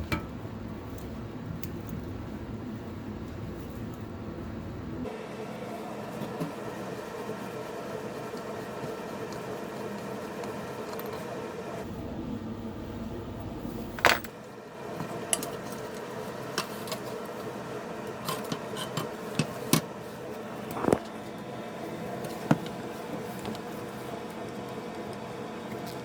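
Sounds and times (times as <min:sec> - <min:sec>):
steady background hum: 0:00.0 - 0:26.0
metal parts and tools clinking: 0:14.0 - 0:14.3.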